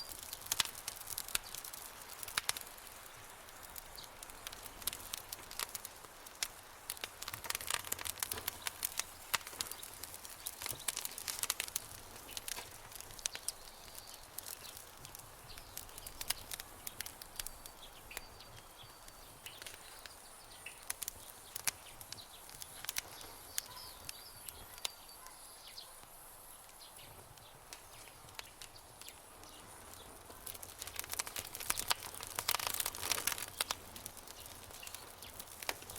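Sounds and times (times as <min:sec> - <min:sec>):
campfire crackling and popping: 0:00.0 - 0:35.9
faint high chirps: 0:23.2 - 0:26.1.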